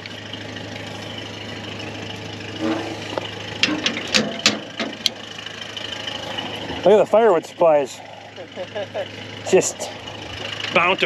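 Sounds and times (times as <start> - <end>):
diesel tractor engine idling: 0.0 - 11.0
sharp clicks and knocks: 3.1 - 5.2.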